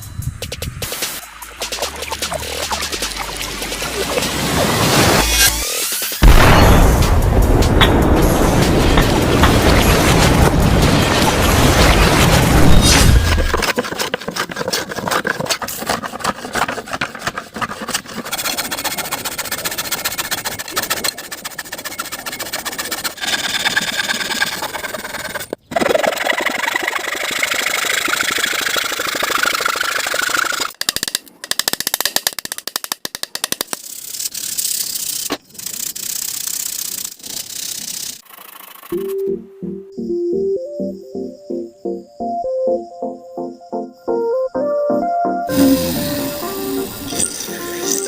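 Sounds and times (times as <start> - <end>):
power tools scraping wood: 13.4 - 25.6.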